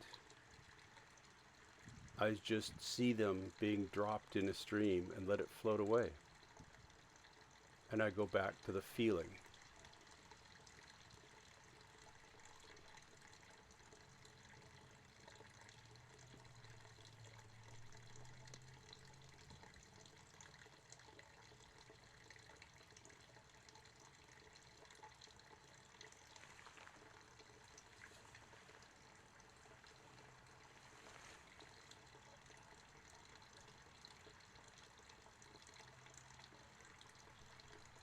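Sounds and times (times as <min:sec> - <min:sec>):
faint trickle of water: 0:00.0 - 0:38.0.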